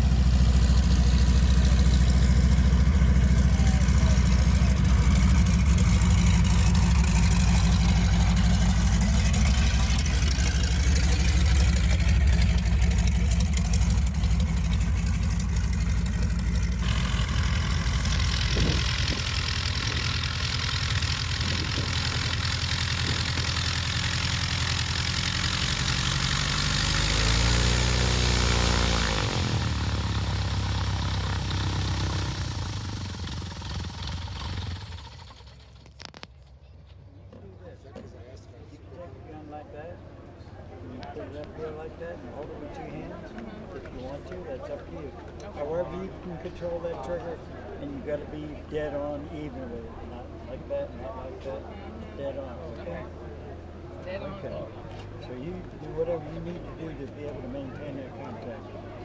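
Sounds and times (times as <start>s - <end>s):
engine running: 0.0s - 38.2s.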